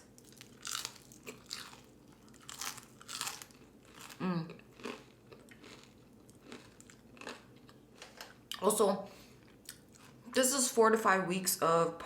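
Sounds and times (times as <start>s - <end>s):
chewing crunchy food: 0.1s - 8.6s
person humming: 4.2s - 4.5s.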